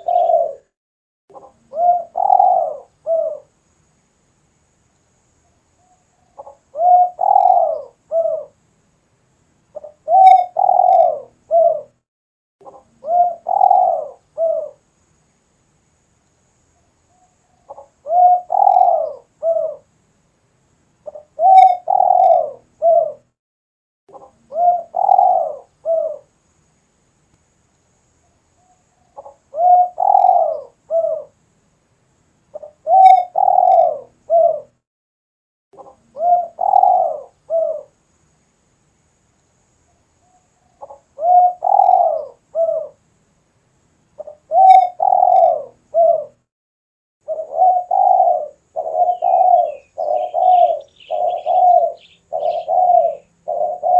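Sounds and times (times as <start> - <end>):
dove cooing: 0.0 - 0.7, 1.4 - 3.5, 6.3 - 8.6, 9.8 - 12.0, 12.6 - 14.8, 17.6 - 19.9, 21.0 - 23.3, 24.1 - 26.3, 29.1 - 31.4, 32.5 - 34.8, 35.8 - 37.9, 40.8 - 43.0, 44.2 - 46.4, 47.2 - 53.9.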